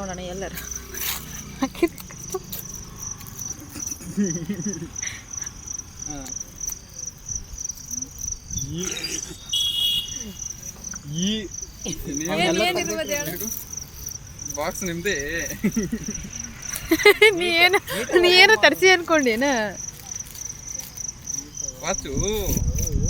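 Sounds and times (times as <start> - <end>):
quiet voices murmuring: 0.0 - 7.0, 7.8 - 23.0
cricket chirping: 0.0 - 23.0.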